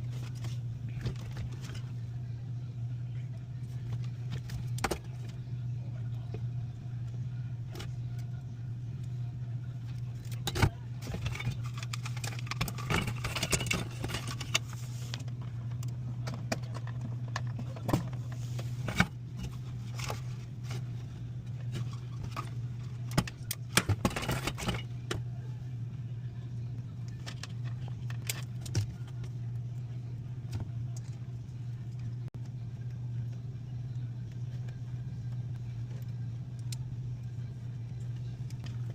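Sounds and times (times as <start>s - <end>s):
low machinery hum: 0.0s - 38.9s
metal tools clinking and rattling: 10.4s - 14.7s.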